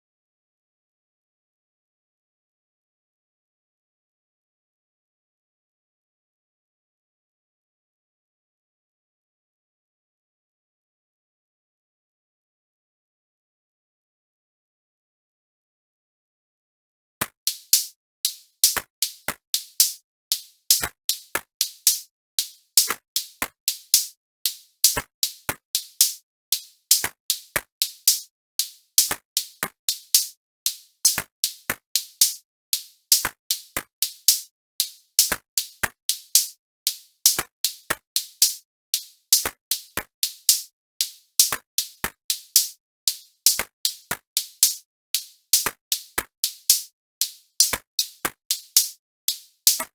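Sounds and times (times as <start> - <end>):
drum machine beat: 17.2 - 49.9.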